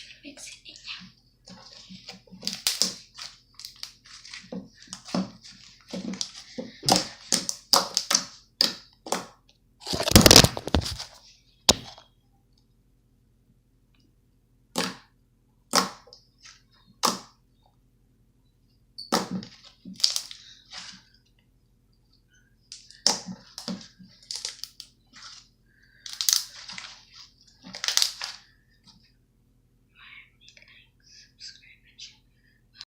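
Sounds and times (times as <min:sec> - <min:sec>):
slime popping and crackling: 0:02.4 - 0:04.0, 0:06.1 - 0:11.0, 0:27.7 - 0:28.4.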